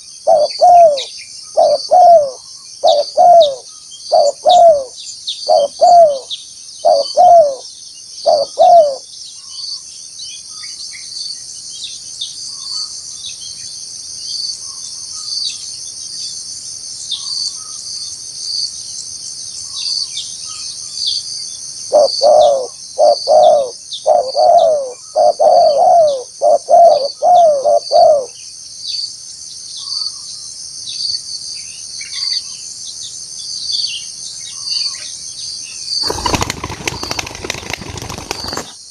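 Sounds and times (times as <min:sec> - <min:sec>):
high insect chorus: 0:00.0 - 0:38.9
dove cooing: 0:00.2 - 0:07.6, 0:08.2 - 0:09.0, 0:21.9 - 0:28.4, 0:36.0 - 0:38.7.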